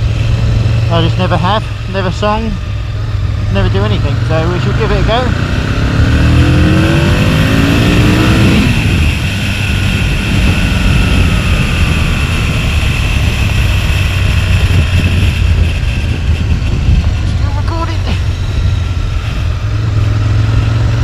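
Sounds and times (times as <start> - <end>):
motorcycle engine revving: 0.0 - 21.0
wind rush on microphone: 5.3 - 21.0.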